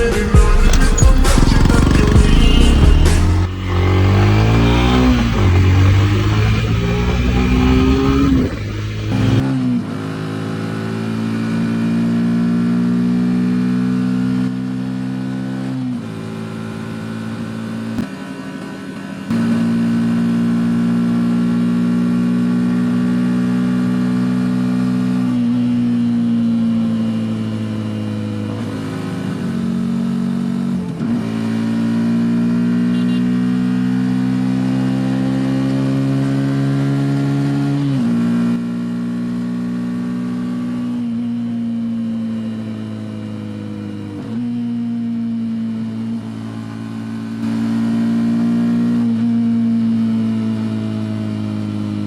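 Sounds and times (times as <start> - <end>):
motorcycle engine running: 0.0 - 9.4, 32.8 - 37.4.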